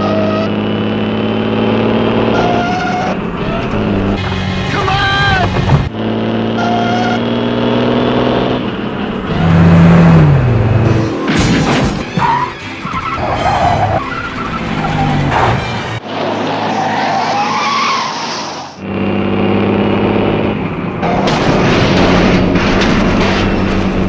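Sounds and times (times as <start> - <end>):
car and truck engines: 0.0 - 24.0
tyres skidding: 0.0 - 24.0
music: 11.3 - 14.6.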